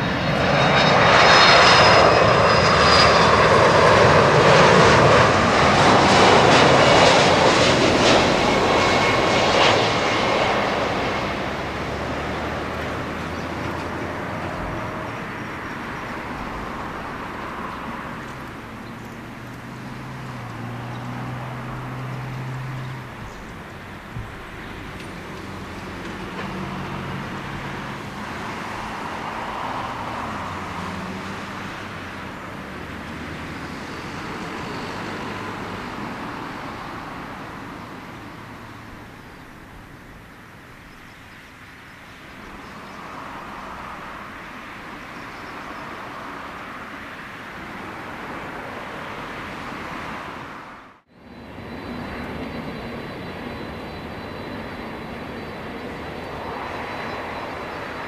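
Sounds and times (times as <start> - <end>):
jet engine rumble and whoosh: 0.0 - 58.0.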